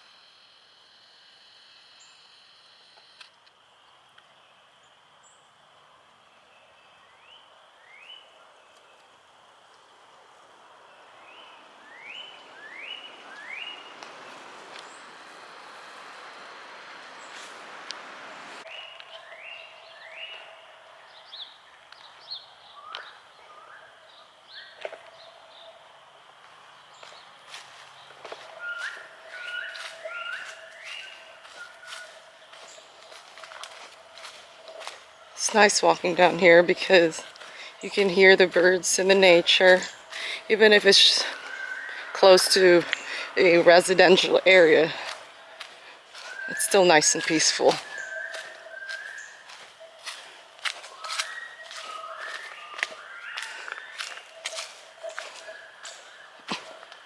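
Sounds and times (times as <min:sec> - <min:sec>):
songbirds chirping: 0:02.0 - 0:16.0, 0:17.0 - 0:57.0
distant bird calls: 0:10.9 - 0:15.2, 0:18.4 - 0:57.0
rising whistled bird notes: 0:47.8 - 0:50.0, 0:50.9 - 0:54.5.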